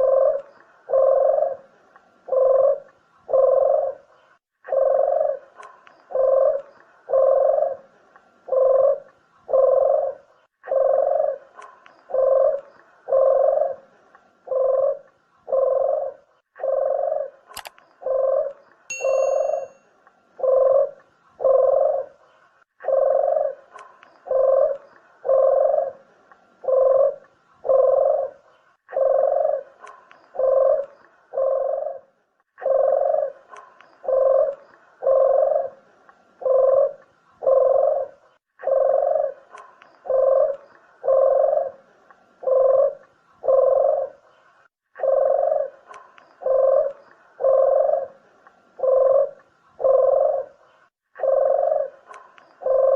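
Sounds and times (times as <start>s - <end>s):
dove cooing: 0.0s - 19.8s, 20.4s - 44.4s, 45.0s - 52.9s
sharp click: 17.5s - 17.8s.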